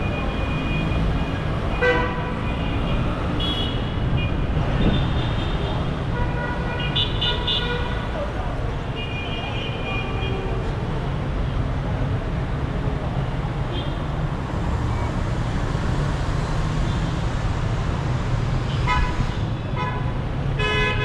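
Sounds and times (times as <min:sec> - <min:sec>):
city traffic rumble: 0:00.0 - 0:21.0
vehicle horns honking: 0:01.7 - 0:08.0, 0:18.7 - 0:21.0.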